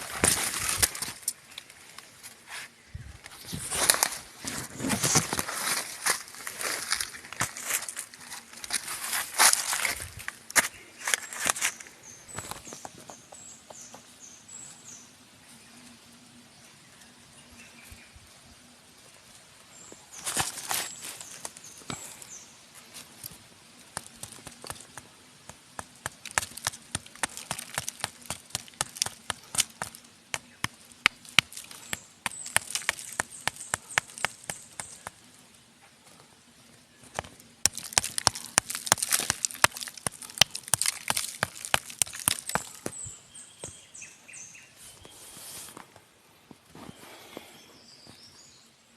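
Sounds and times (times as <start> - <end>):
rustling scrapes: 2.2 - 10.4, 44.8 - 46.0.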